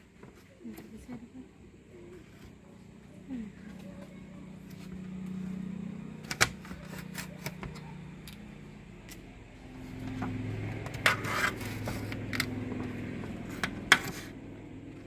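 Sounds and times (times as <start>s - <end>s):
low motor hum: 0.7s - 15.0s.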